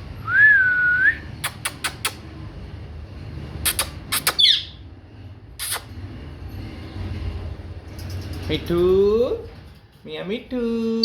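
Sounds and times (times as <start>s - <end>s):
sharp clicks: 1.4s - 2.2s, 3.7s - 4.5s
parrot chirp: 3.6s - 4.8s.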